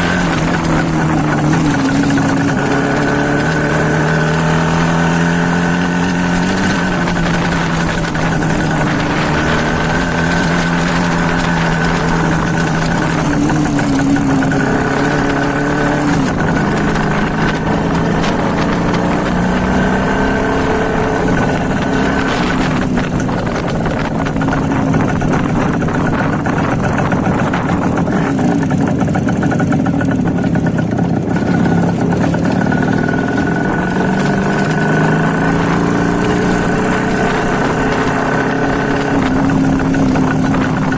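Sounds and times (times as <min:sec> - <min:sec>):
loud two-stroke engine revving: 0:00.0 - 0:40.9.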